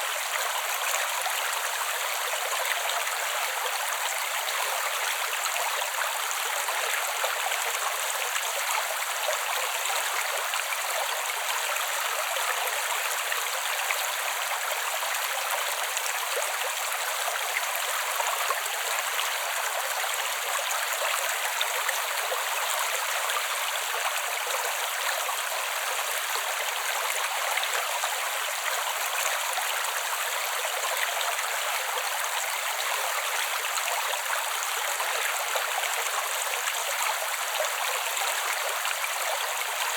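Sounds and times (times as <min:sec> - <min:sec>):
creek flowing over rocks: 0:00.0 - 0:39.9.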